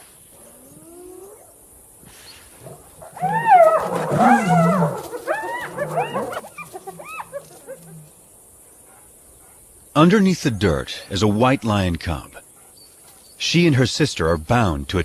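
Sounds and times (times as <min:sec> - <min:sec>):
hyenas yelping and whooping: 0:02.6 - 0:08.3.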